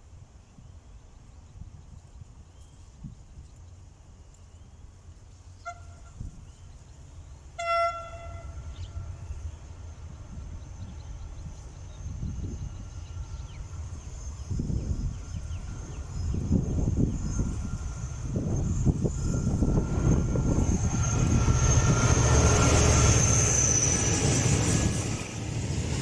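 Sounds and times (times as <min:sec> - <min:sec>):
train horn blasts: 0:05.6 - 0:06.4, 0:07.6 - 0:09.3.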